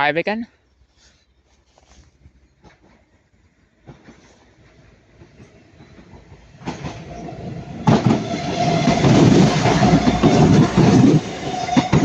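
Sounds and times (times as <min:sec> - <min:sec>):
wheels rumbling on track: 0:02.6 - 0:12.0
diesel train passing: 0:02.7 - 0:12.0
train whine: 0:03.8 - 0:12.0.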